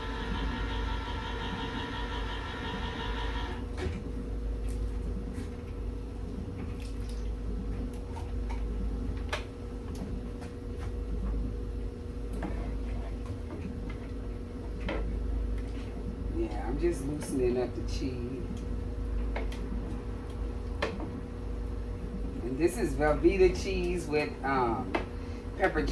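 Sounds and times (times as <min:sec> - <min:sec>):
pitched humming: 0:00.0 - 0:03.8
steady low hum: 0:00.0 - 0:25.9.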